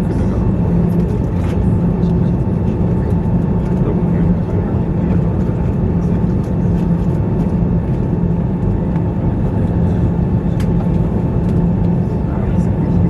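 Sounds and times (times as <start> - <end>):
jet engines rumbling: 0.0 - 13.0
steady hum: 0.0 - 13.0.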